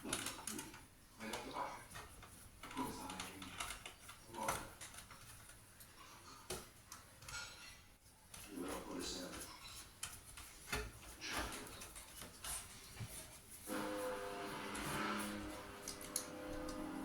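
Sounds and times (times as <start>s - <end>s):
screwdriver clicks and metal scrapes: 14.6s - 16.9s.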